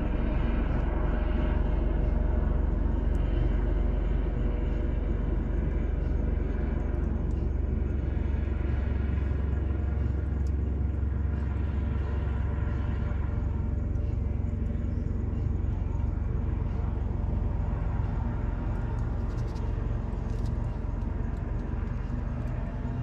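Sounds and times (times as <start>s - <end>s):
low background rumble: 0.0s - 23.0s.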